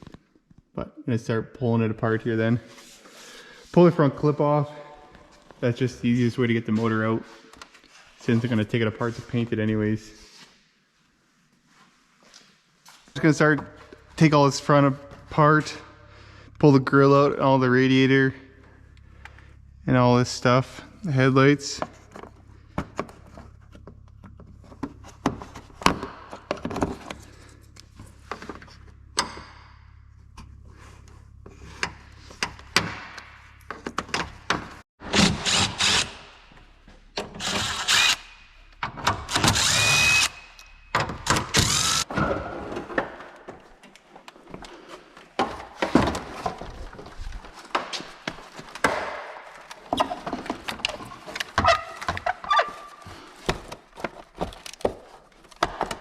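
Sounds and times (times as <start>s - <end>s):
cordless power tool running: 35.2s - 36.2s, 37.3s - 38.4s, 39.3s - 40.7s, 41.4s - 42.0s.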